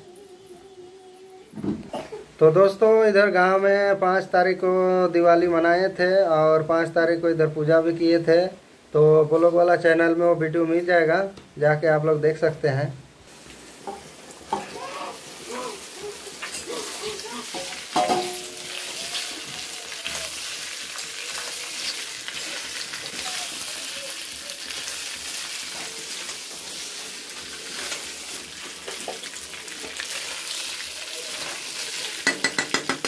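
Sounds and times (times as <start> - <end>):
food sizzling in hot oil: 13.2 - 33.0
spatula scraping a pan: 25.6 - 30.3.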